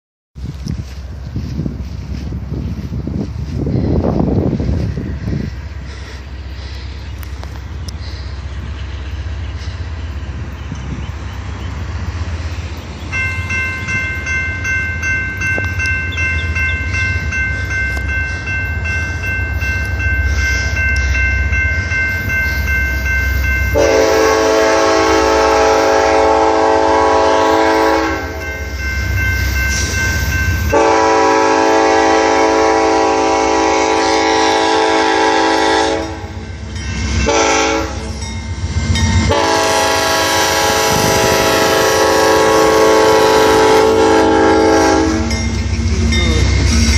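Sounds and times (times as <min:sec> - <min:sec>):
diesel locomotive rumble: 0:00.4 - 0:46.9
steady high ringing tone: 0:13.0 - 0:24.4, 0:28.0 - 0:31.8, 0:36.0 - 0:39.4, 0:45.2 - 0:46.9
train air horn blasts: 0:23.7 - 0:28.5, 0:30.7 - 0:38.2, 0:39.2 - 0:45.4.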